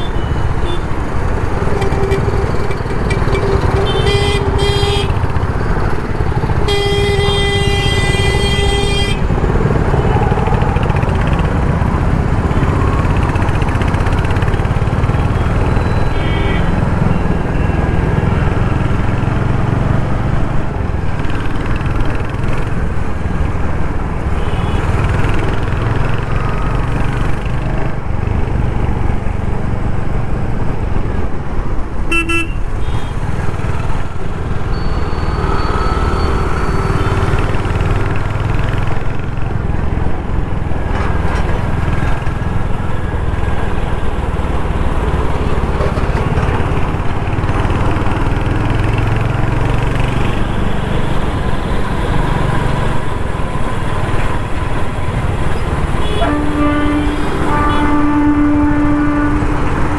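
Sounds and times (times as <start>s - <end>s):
vehicle horns honking: 0.0s - 18.9s, 24.3s - 26.8s, 32.1s - 38.3s, 55.8s - 59.9s.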